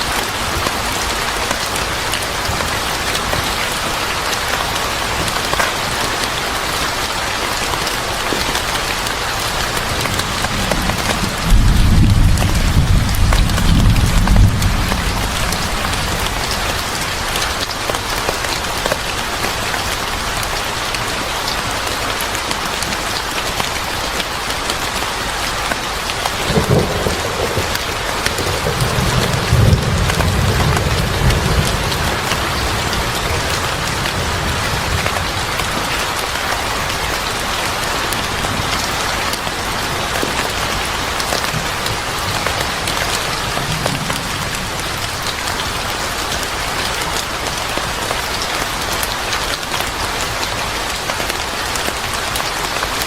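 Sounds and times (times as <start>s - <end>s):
heavy rain falling: 0.0s - 53.0s
low thunder rumbles: 9.7s - 17.6s, 26.4s - 35.9s.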